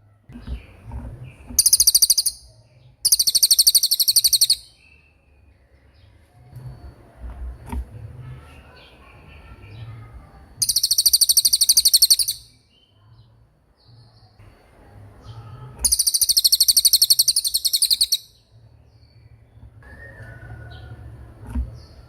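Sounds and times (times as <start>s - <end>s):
faint bird chirps: 0.0s - 21.0s
bird fast high trill: 1.6s - 2.4s, 3.1s - 4.7s, 10.6s - 12.5s, 15.8s - 18.4s.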